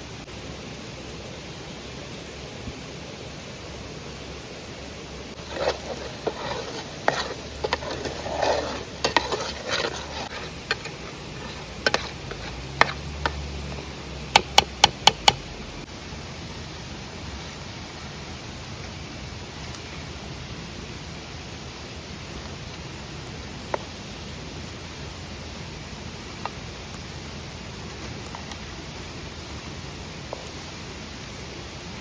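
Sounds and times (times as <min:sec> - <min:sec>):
steady hiss: 0:00.0 - 0:32.0
utensil scraping in a pan: 0:05.3 - 0:15.5
utensil tapping a pan: 0:05.4 - 0:15.5.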